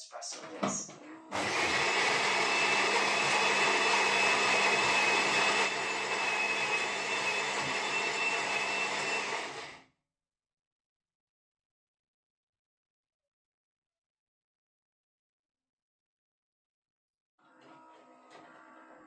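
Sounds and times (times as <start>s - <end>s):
espresso machine brewing: 1.4s - 9.8s.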